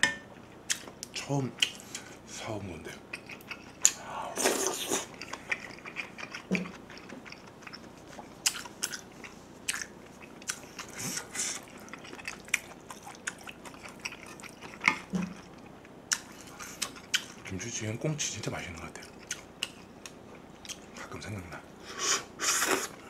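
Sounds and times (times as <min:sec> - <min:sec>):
chewing with wet mouth smacks: 0:03.1 - 0:17.6, 0:19.0 - 0:20.9.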